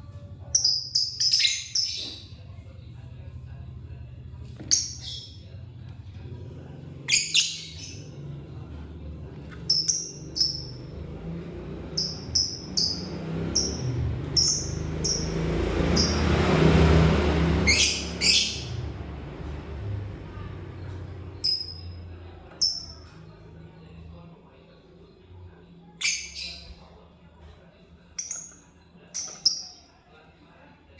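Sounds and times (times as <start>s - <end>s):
lovebird chirping: 0.5s - 2.3s, 7.1s - 8.1s, 9.7s - 10.9s, 12.0s - 16.3s, 17.6s - 18.8s, 21.4s - 22.0s, 22.6s - 23.1s, 28.2s - 29.9s
harsh bird calls: 9.7s - 19.1s.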